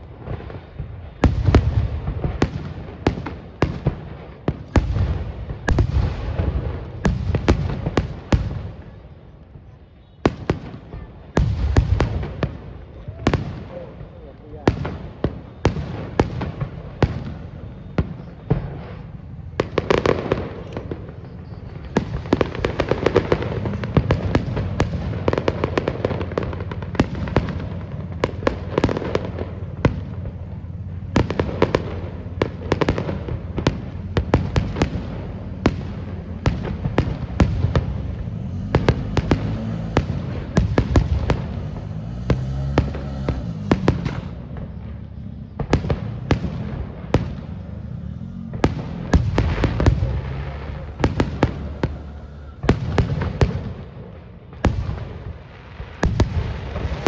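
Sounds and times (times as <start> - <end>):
fireworks bangs and crackles: 0.0 - 57.0
low rumble: 16.5 - 55.3.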